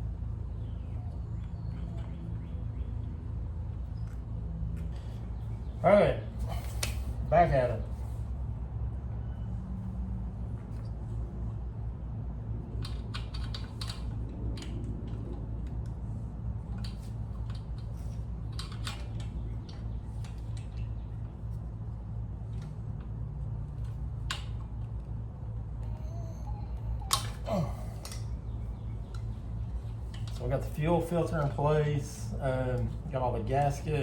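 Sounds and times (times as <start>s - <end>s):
steady low hum: 0.0s - 34.0s
small parts clicking and tapping: 12.7s - 21.6s, 28.0s - 30.4s.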